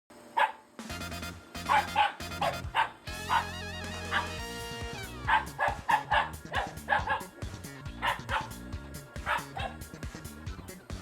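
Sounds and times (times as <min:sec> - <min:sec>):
dog barking and yipping: 0:00.4 - 0:00.7, 0:01.6 - 0:04.5, 0:05.1 - 0:09.9
background music: 0:00.7 - 0:11.0.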